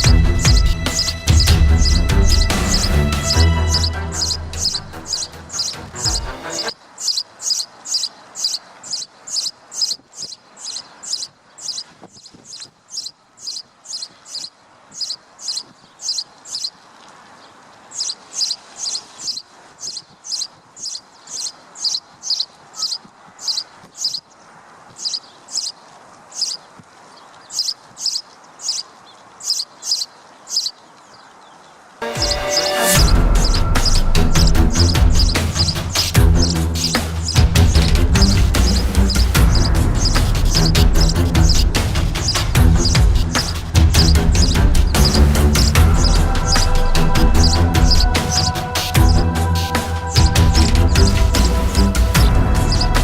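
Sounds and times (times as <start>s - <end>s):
short high chirping calls: 2.7s - 16.8s, 17.9s - 24.2s, 25.0s - 26.6s, 27.5s - 30.8s.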